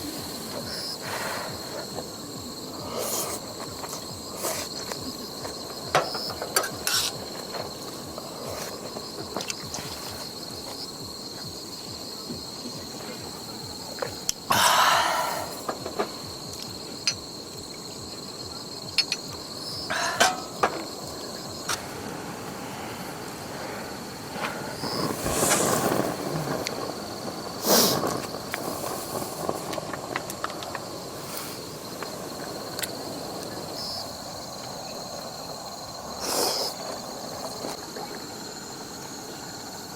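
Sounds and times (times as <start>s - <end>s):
high insect chirring: 0.0s - 39.9s
camp gear rustling and clattering: 2.9s - 14.6s, 18.8s - 22.0s, 24.3s - 33.0s.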